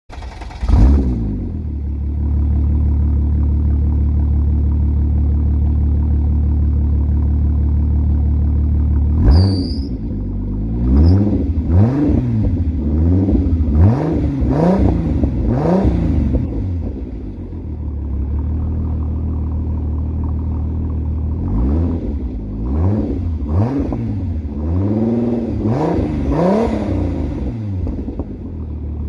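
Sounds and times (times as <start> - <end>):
car engine cold start and idle: 0.1 - 29.0
engine revs blipping: 9.0 - 16.9, 21.2 - 28.2
high turbo whistle: 9.2 - 10.0.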